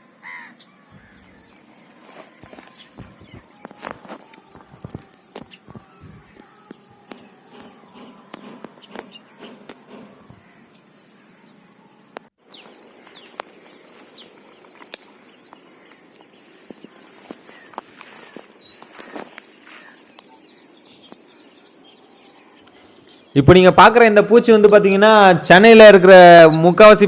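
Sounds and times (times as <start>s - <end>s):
crickets trilling: 0.0s - 27.0s
clicks and rustles in grass: 1.5s - 7.7s, 12.5s - 20.4s.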